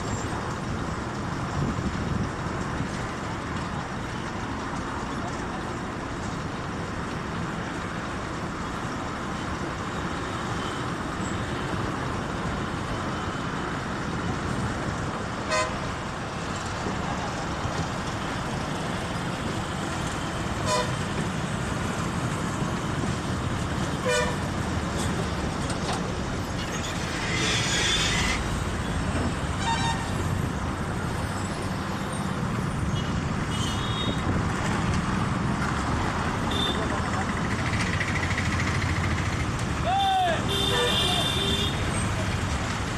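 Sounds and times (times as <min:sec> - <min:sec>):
highway traffic noise: 0:00.0 - 0:42.9
vehicle horn toots: 0:40.5 - 0:41.8.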